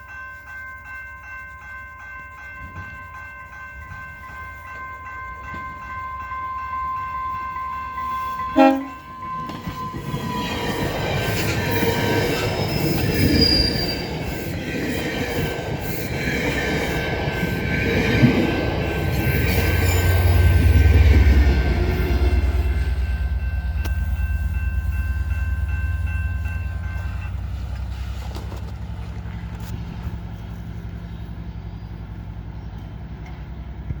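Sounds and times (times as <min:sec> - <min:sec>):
wheels on rail: 0:00.0 - 0:34.0
diesel locomotive rumble: 0:02.6 - 0:34.0
train horn chord: 0:06.5 - 0:10.1.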